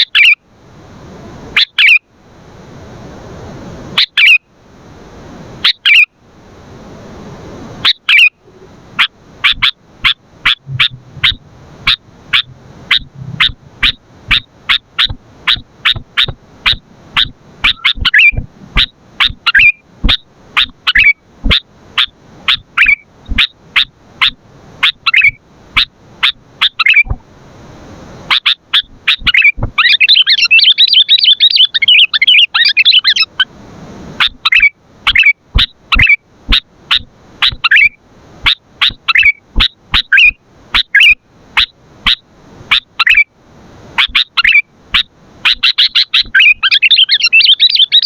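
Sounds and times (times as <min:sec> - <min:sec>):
bird chattering: 0:09.0 - 0:27.1, 0:28.3 - 0:33.4, 0:34.2 - 0:43.2, 0:44.0 - 0:48.0
bulbul calling sharp notes: 0:09.5 - 0:21.6.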